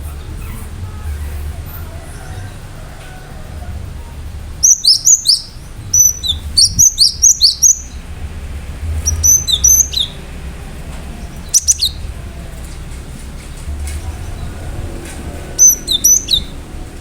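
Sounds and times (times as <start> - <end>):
low steady hum: 0.0 - 17.0
bird singing high whistled notes: 4.1 - 8.2, 9.0 - 10.3, 11.3 - 12.2, 15.5 - 16.7.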